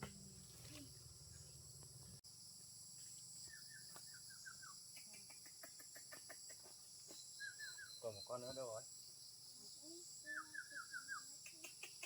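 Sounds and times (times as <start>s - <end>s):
insects droning: 0.0s - 12.0s
bird chirping: 3.4s - 12.0s.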